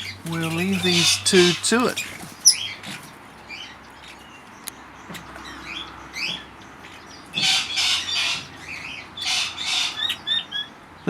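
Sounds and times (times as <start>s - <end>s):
birds chirping: 0.0s - 11.0s
birds screeching: 0.0s - 11.0s.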